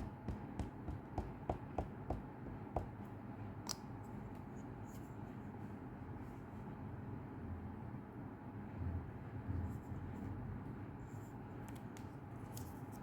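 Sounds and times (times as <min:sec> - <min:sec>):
rubber stamp tapping on table: 0:00.0 - 0:03.0.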